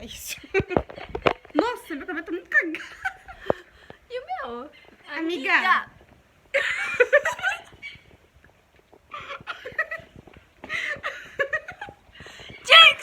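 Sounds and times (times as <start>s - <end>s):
young women talking: 0.0s - 0.6s, 1.5s - 2.9s, 4.1s - 5.9s, 12.6s - 13.0s
women laughing: 2.0s - 3.7s, 6.5s - 8.1s, 9.1s - 12.1s.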